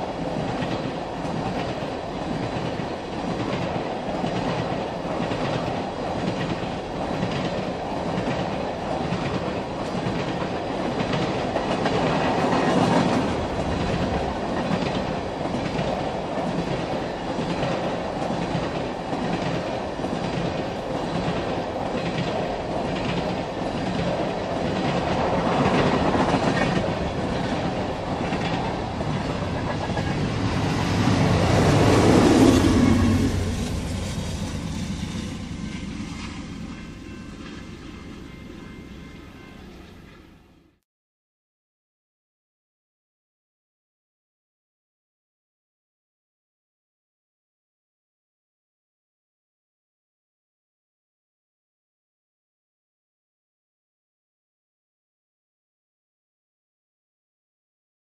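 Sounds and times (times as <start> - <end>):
locomotives passing: 0.0 - 39.9
freight train rumble: 0.0 - 40.5
wheels clicking over rail joints: 0.2 - 30.5.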